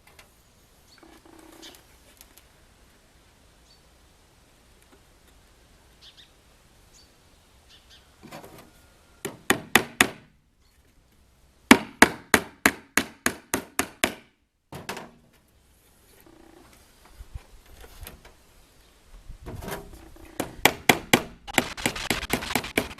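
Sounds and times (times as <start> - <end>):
hammer driving nails into wood: 9.2 - 10.3, 11.7 - 15.1, 20.3 - 22.9.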